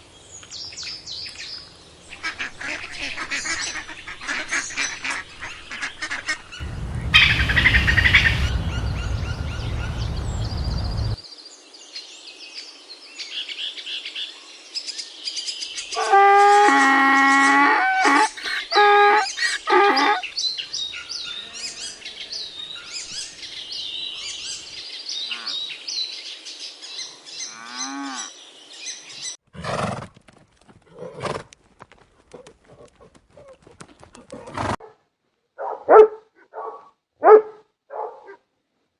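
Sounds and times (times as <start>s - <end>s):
birds chirping: 6.6s - 11.2s, 18.3s - 20.3s
loud noisy animal call: 6.6s - 11.2s, 16.0s - 20.3s
loud pitched animal calls: 6.6s - 11.2s, 16.0s - 20.3s
low rumble: 6.6s - 11.2s.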